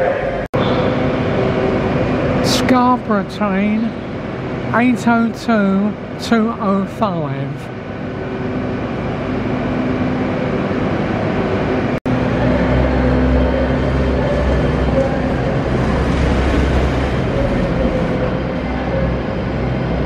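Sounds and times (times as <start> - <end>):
train engine hum: 0.0 - 20.0
low rumble: 7.7 - 20.0.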